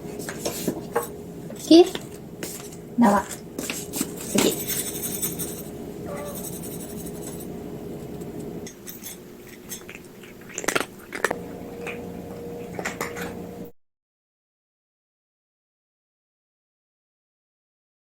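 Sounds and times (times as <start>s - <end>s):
steady low hum: 0.0s - 10.4s, 11.0s - 13.7s
cat chewing food: 6.5s - 13.4s
food and bowl clicks: 8.3s - 13.4s.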